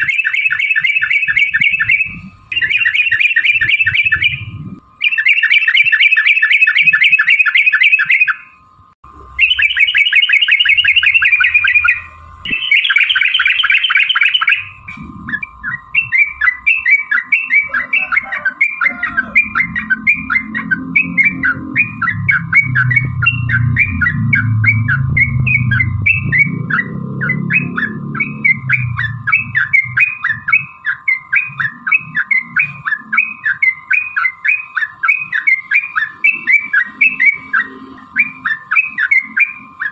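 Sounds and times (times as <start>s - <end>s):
bird chirping notes: 0.0s - 39.9s
low rumble: 3.7s - 4.9s, 14.6s - 16.7s, 19.0s - 30.8s
bird chattering rattles: 9.4s - 39.9s.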